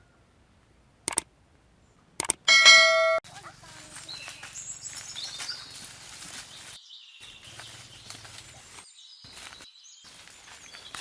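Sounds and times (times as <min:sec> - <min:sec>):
birds chirping: 0:01.8 - 0:11.0.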